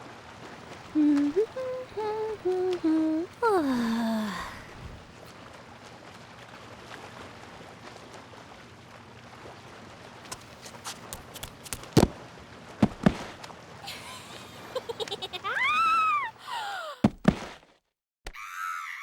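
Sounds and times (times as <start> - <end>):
faint background hiss: 0.7 - 5.3
dull thumps: 10.3 - 12.2, 12.8 - 13.4, 17.0 - 17.6.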